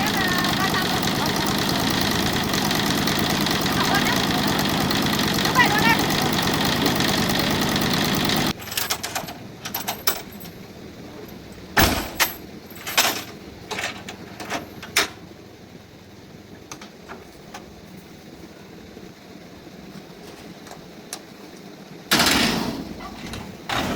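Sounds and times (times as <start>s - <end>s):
loud noise: 0.0s - 8.6s
tractor engine running: 0.0s - 19.0s.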